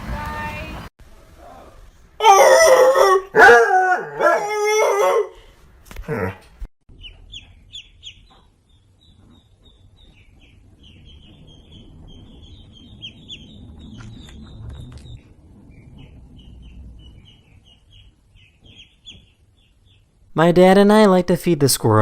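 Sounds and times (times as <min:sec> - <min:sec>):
low rumble: 0:06.9 - 0:20.3
small birds chirping: 0:06.9 - 0:20.3.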